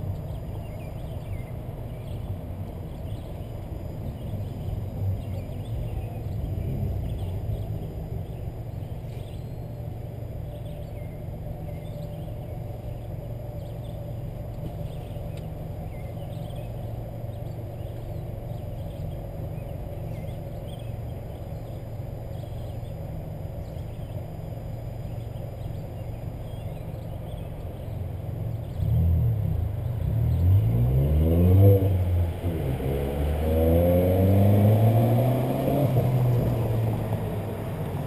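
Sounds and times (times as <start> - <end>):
car engine idling: 0.0 - 30.7, 36.0 - 38.0
faint bird chirps: 0.1 - 29.0.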